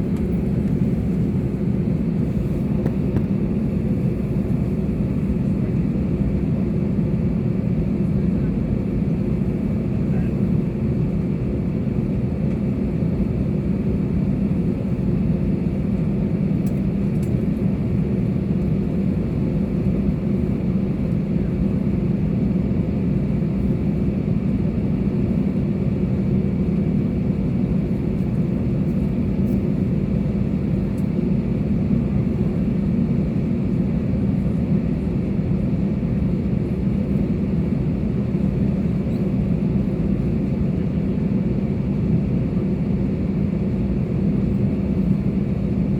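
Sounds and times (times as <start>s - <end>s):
airplane engine drone: 0.0s - 45.9s.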